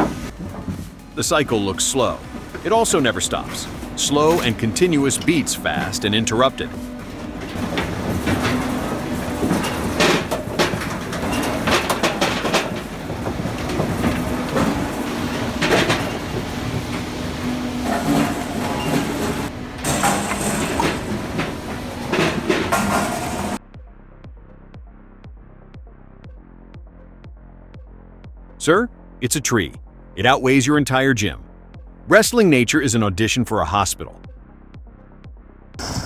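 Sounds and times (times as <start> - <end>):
clanks and knocks of logs: 0.0 - 23.6
hydraulic and engine hum: 0.0 - 23.6.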